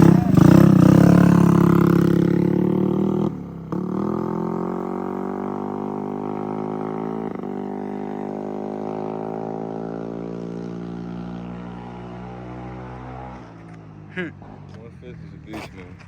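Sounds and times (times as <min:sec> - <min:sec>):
moped engine running at high revs: 0:00.0 - 0:12.7.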